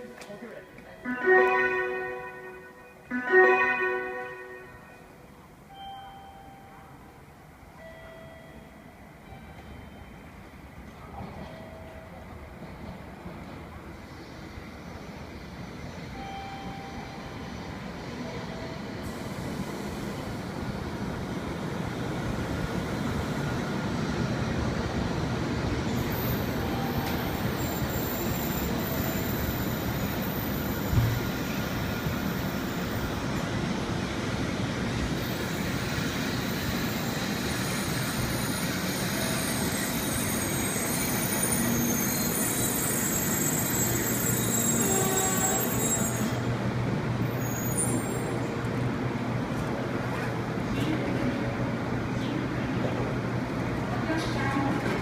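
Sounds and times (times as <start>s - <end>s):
train running noise inside car: 9.1s - 46.6s, 52.2s - 55.0s.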